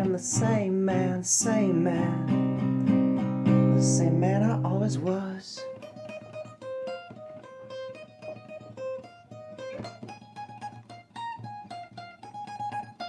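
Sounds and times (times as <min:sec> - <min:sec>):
acoustic guitar picking: 0:00.0 - 0:13.0.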